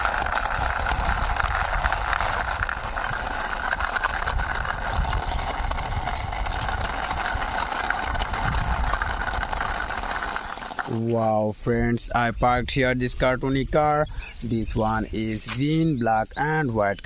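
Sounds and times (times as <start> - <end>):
toy car wheels clattering on wall: 0.0 - 10.9
steady rushing noise: 0.0 - 11.1.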